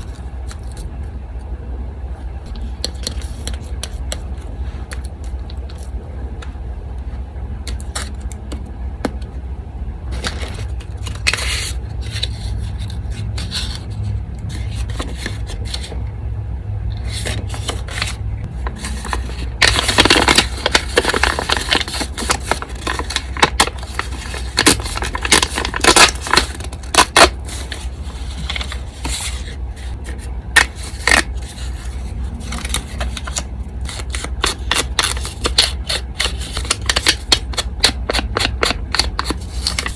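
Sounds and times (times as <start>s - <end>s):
electric fan humming: 0.0s - 39.9s
paper scraping and rustling: 10.1s - 16.0s, 17.0s - 39.9s.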